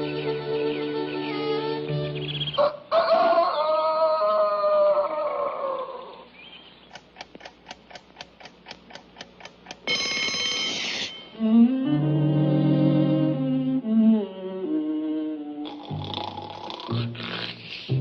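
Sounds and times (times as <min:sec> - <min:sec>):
rooster crowing: 0:02.5 - 0:06.2
clock ticking: 0:07.0 - 0:10.7
alarm clock ringing: 0:09.8 - 0:11.4
held music notes: 0:09.9 - 0:16.0.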